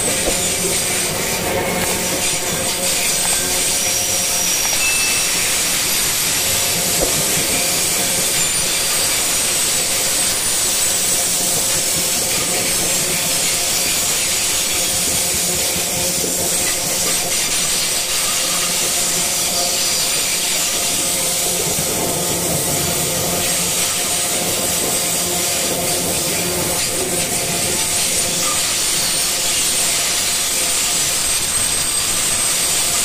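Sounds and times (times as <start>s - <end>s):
high-pitched wheel squealing: 0.0s - 10.9s
train wheels on rails: 0.0s - 33.0s.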